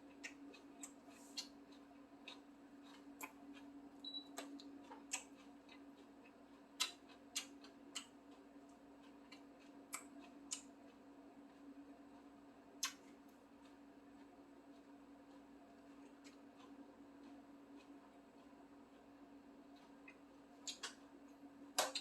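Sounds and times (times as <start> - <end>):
range hood fan hum: 0.0 - 22.0
mouth and chopsticks clicking: 4.4 - 5.8, 6.8 - 8.1, 9.3 - 10.7, 19.8 - 21.0.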